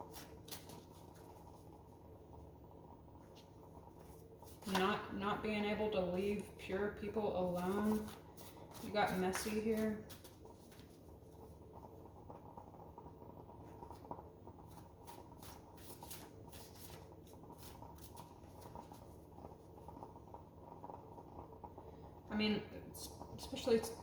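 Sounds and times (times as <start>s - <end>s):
cards shuffling: 0.1s - 1.3s, 7.5s - 11.0s, 15.1s - 17.0s.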